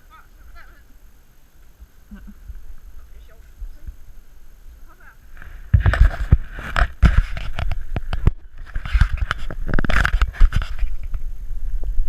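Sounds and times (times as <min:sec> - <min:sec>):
wind on microphone: 0:01.8 - 0:12.0
bicycle rattling over bumpy ground: 0:05.7 - 0:12.0.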